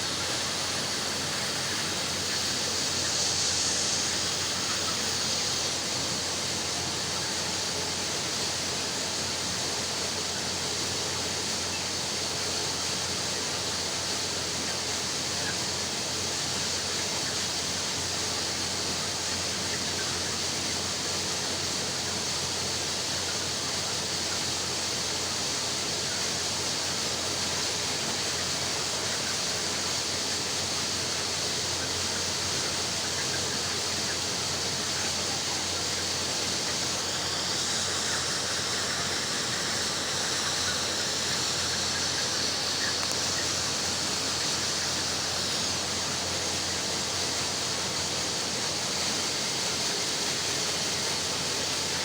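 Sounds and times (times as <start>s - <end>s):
poultry flock chirping and calling: 0.0s - 52.0s.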